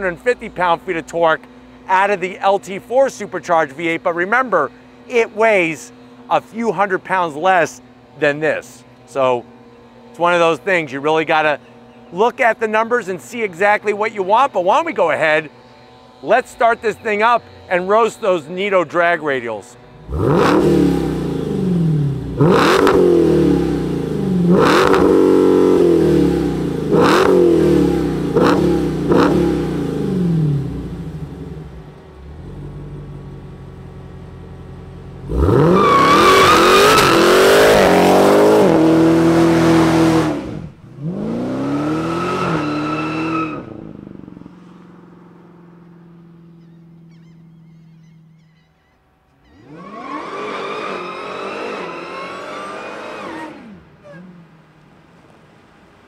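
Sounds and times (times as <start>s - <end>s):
car engine idling: 0.0s - 41.6s, 43.6s - 48.6s
car engine revving: 19.8s - 48.3s, 49.6s - 54.9s
tyres spinning in a burnout: 35.3s - 44.0s, 49.6s - 54.3s.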